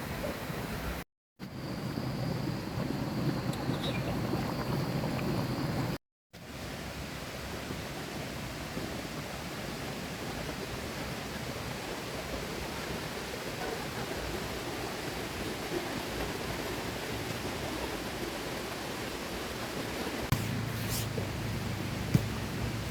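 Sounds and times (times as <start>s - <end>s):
river water rushing: 16.6s - 22.9s.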